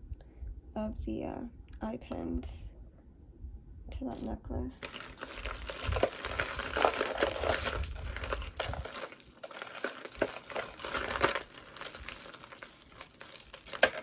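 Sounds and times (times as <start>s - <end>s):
beads and chain rattling: 4.1s - 14.0s
handling bumps: 4.8s - 14.0s.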